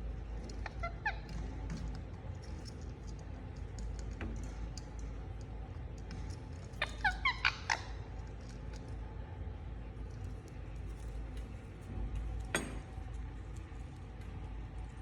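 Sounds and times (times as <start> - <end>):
steady low hum: 0.0 - 15.0
parakeet chirps: 6.8 - 8.0.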